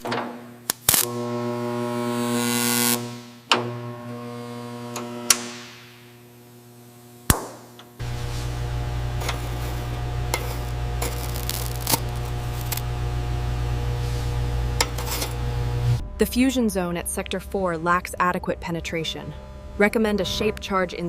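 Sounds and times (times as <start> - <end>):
low machine hum: 8.0 - 21.0
faint background music: 16.0 - 21.0.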